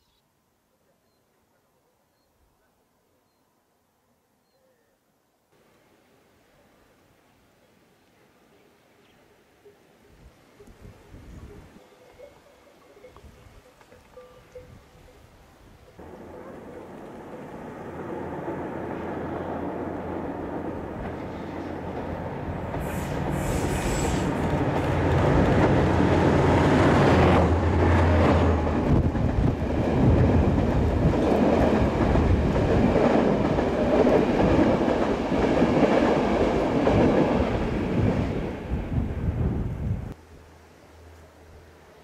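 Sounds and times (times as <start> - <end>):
diesel locomotive drone: 16.0 - 42.0.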